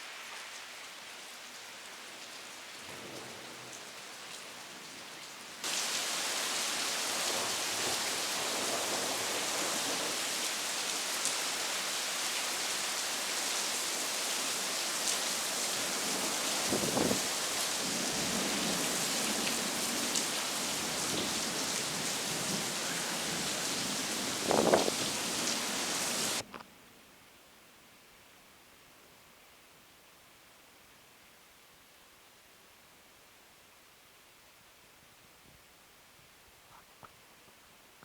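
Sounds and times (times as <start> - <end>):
heavy rain hissing: 2.0 - 26.4.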